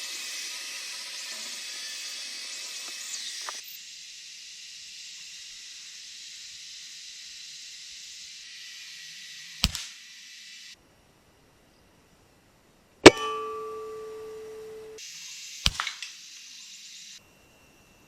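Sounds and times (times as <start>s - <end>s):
insects droning: 0.0s - 18.0s
sharp crack: 9.6s - 10.0s, 15.6s - 16.2s.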